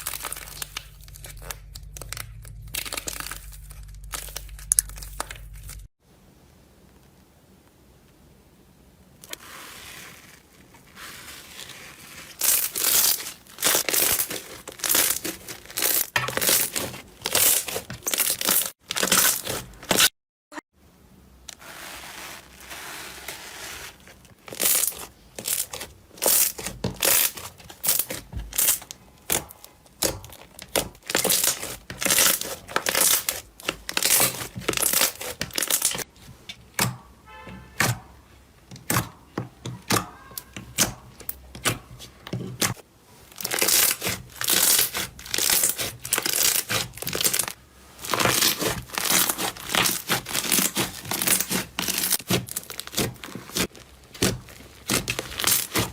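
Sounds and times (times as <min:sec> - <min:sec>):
slime crackling and popping: 0:00.0 - 0:05.9, 0:10.3 - 0:20.1, 0:24.4 - 0:36.1, 0:42.6 - 0:55.9.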